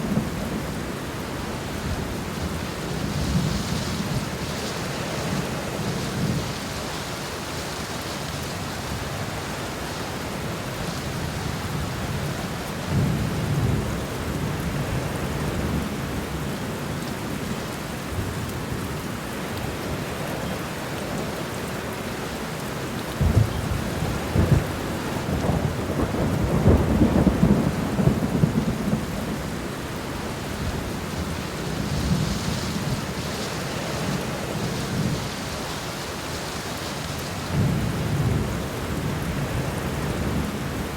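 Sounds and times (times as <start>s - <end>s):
steady rain falling: 0.0s - 40.9s
deep rolling thunder rumble: 23.2s - 35.2s, 37.4s - 40.9s.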